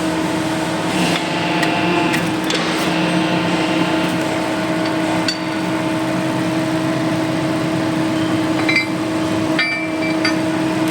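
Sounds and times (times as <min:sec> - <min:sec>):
press machine humming: 0:00.6 - 0:08.6.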